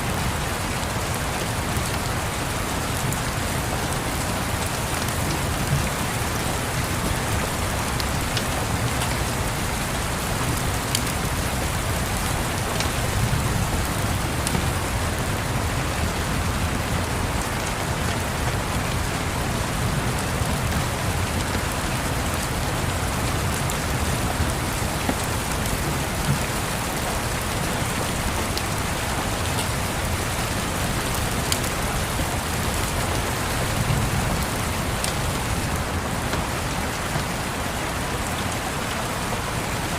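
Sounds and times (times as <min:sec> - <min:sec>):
steady rain: 0:00.0 - 0:39.9
faint wood fire crackling: 0:04.4 - 0:15.4, 0:21.2 - 0:37.3.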